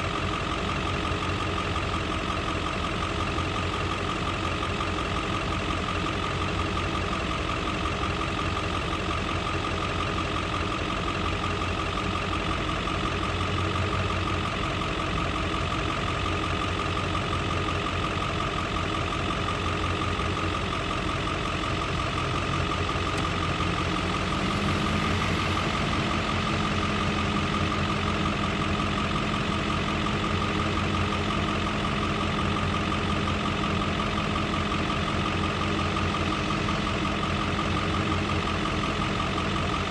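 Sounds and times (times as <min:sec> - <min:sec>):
farm machinery engine whining: 0:19.3 - 0:39.9.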